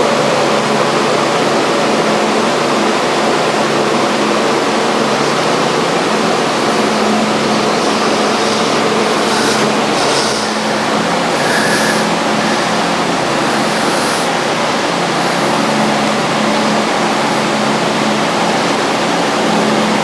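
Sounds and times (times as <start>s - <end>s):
shop machine whirring: 5.0s - 16.7s.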